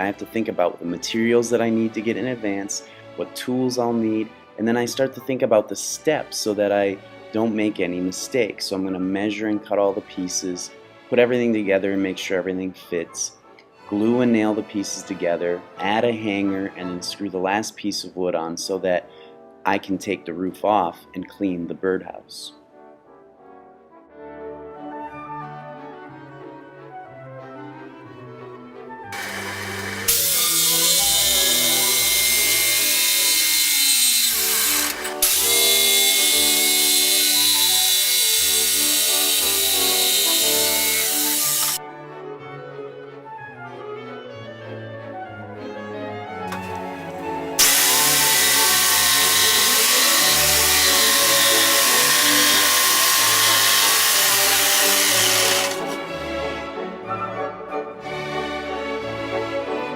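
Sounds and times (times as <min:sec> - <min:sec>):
background music: 0:00.0 - 0:59.9
power tool whining on wood: 0:29.2 - 0:41.8, 0:46.5 - 0:56.0.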